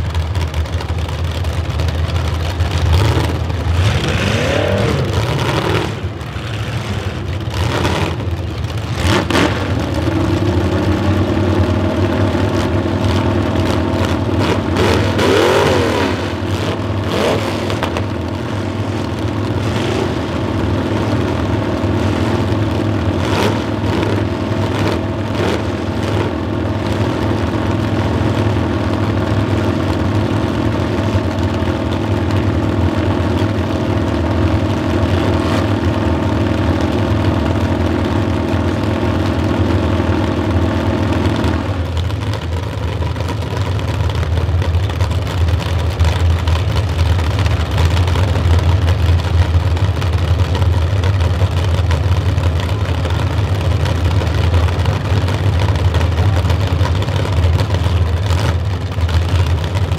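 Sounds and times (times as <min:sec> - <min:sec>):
car engines idling: 0:00.0 - 0:59.9
engine revving: 0:02.7 - 0:27.3.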